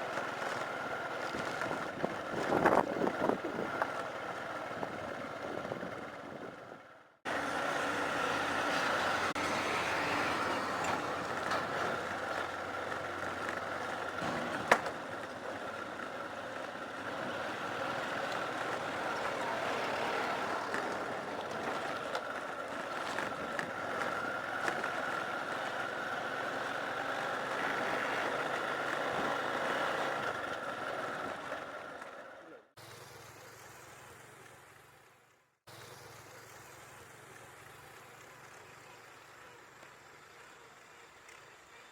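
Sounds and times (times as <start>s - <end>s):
motorcycle on dirt road: 0.0s - 41.9s.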